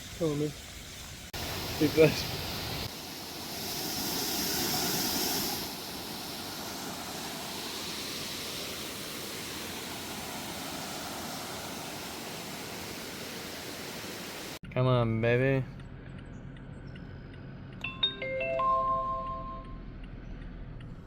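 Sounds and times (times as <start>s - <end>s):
waterfall and river rushing: 1.4s - 14.6s.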